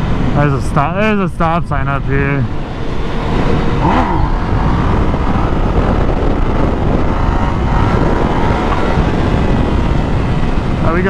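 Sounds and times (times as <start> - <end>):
wind rush on microphone: 0.0 - 11.0
motorcycle engine running: 2.5 - 11.0.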